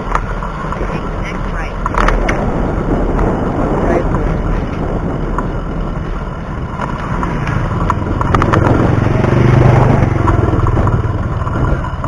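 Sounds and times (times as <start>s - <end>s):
wind rumble on microphone: 0.0s - 12.0s
motorcycle passing by: 6.6s - 12.0s.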